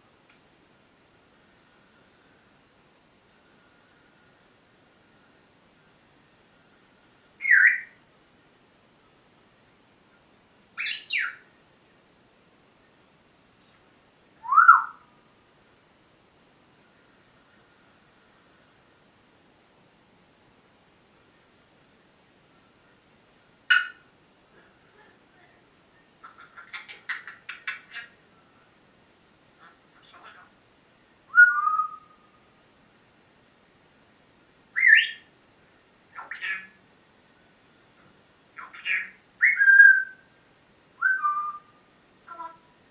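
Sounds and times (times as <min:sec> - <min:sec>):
parrot calls and whistles: 0:07.4 - 0:08.0, 0:10.8 - 0:11.4, 0:13.6 - 0:15.0, 0:23.7 - 0:24.0, 0:31.3 - 0:32.3, 0:34.8 - 0:35.3, 0:36.1 - 0:36.8, 0:38.6 - 0:40.2, 0:41.0 - 0:42.6
parrot whistling: 0:13.6 - 0:15.0, 0:31.3 - 0:32.2, 0:41.0 - 0:41.7.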